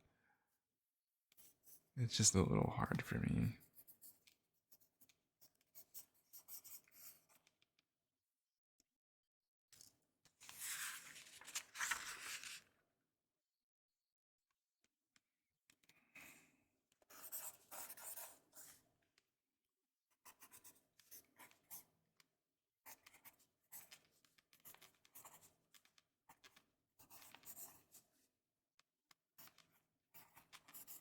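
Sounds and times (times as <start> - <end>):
pen scribbling on paper: 17.1 - 18.3.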